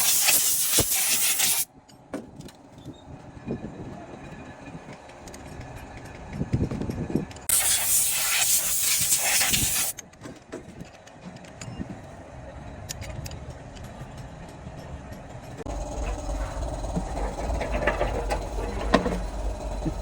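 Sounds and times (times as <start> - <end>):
compressed air hissing: 0.0 - 1.7, 7.5 - 10.0
tools clicking and clinking: 12.8 - 15.7.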